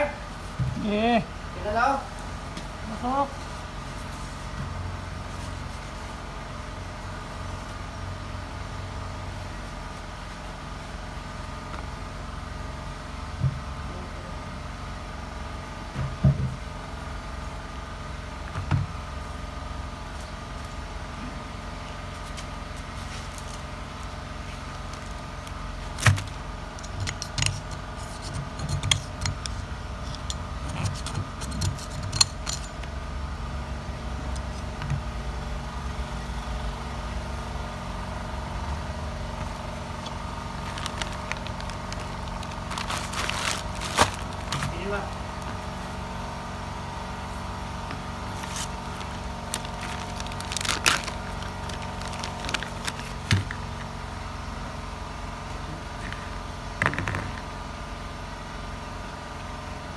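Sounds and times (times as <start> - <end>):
steady mechanical hum: 0.0 - 59.9
metallic clinks and knocks: 28.5 - 32.9.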